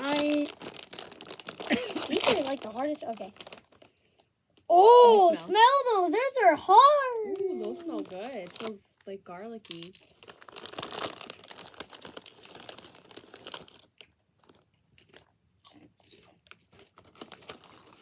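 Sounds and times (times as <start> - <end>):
potato chips crunching: 0.0 - 3.8, 9.7 - 18.0.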